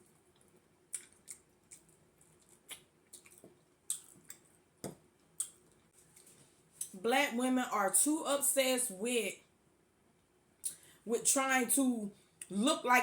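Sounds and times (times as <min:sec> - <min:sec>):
mouth chewing wet food: 0:00.0 - 0:04.6, 0:05.2 - 0:06.9.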